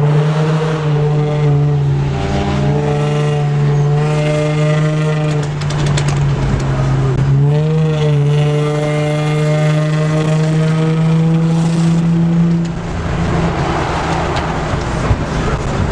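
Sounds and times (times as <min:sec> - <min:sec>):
car engine droning: 0:00.0 - 0:15.9.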